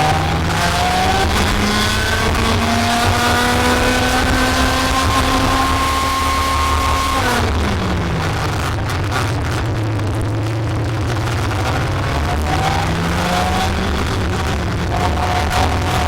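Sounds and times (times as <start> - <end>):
heavy rumble: 0.0 - 16.0
race car accelerating: 0.0 - 16.0.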